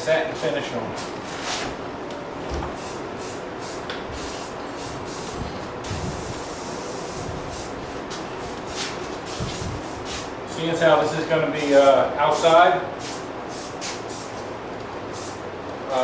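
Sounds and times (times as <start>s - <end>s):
aerosol spray paint hissing: 2.8s - 7.8s, 8.6s - 10.3s, 12.4s - 14.4s, 15.1s - 15.4s.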